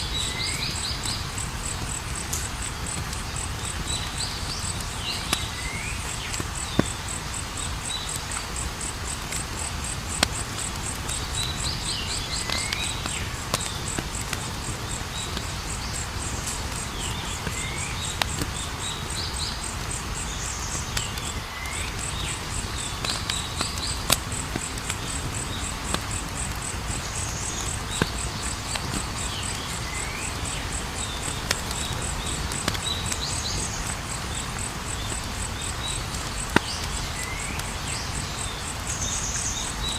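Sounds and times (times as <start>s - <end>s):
campfire crackling and popping: 0.0s - 39.9s
crickets trilling: 0.0s - 39.9s.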